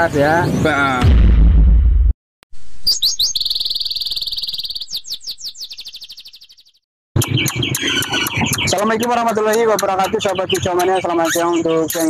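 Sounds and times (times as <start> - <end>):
songbird singing with trills: 2.8 - 12.0.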